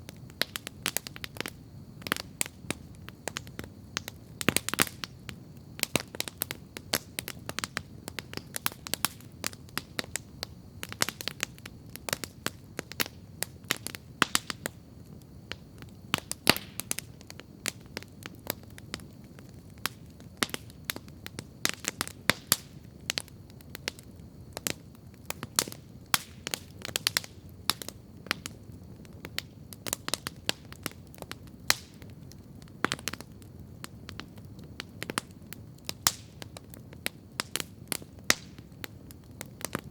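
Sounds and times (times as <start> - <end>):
campfire crackling: 0.0 - 39.9
sharp pops and snaps: 0.2 - 14.8, 15.5 - 28.6.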